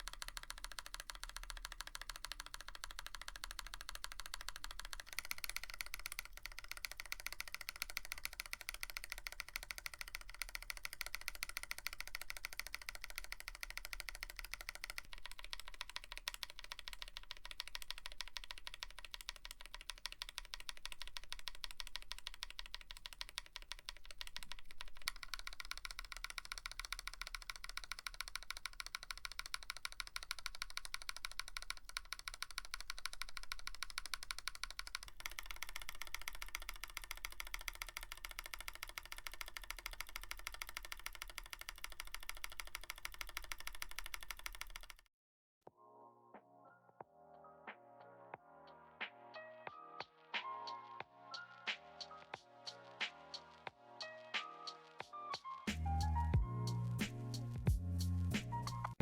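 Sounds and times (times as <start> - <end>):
mechanical keyboard typing: 0.0 - 45.1.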